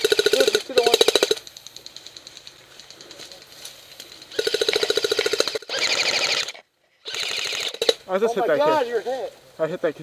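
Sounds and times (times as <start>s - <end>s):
airsoft gun firing full-auto: 4.3s - 6.5s
distant rapid gunfire: 4.3s - 6.5s.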